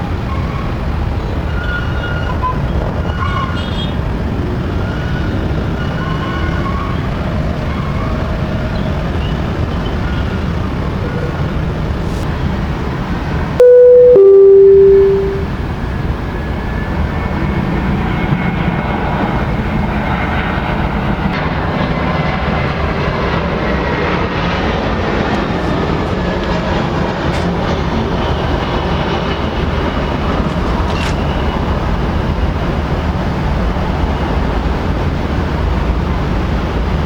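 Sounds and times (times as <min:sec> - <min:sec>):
two-note horn blast: 0:13.6 - 0:15.5.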